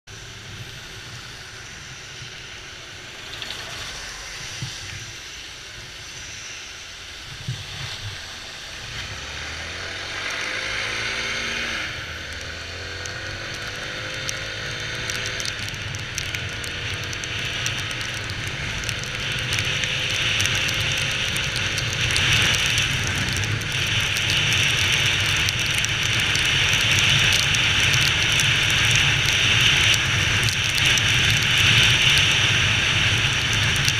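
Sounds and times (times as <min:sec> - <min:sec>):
hiss: 0:00.1 - 0:09.5.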